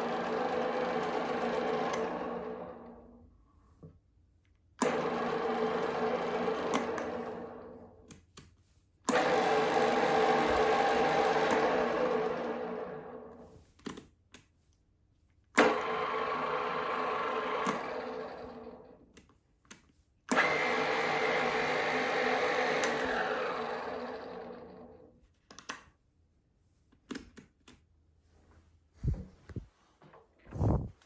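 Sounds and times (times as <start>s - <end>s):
drill press motor humming: 0.0s - 3.1s, 4.8s - 7.9s, 9.1s - 13.4s, 15.6s - 19.0s, 20.3s - 25.0s.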